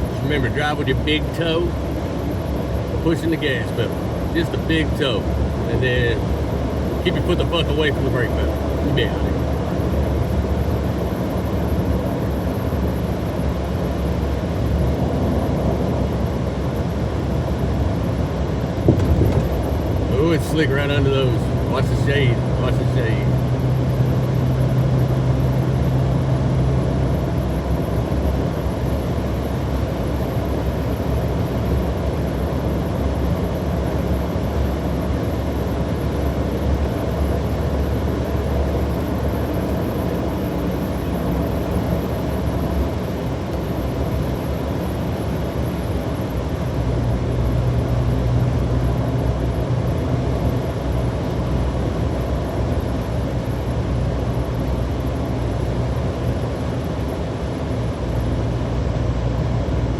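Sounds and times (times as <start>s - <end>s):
car road noise: 0.0s - 12.0s, 12.8s - 59.9s
low droning hum: 0.0s - 59.9s.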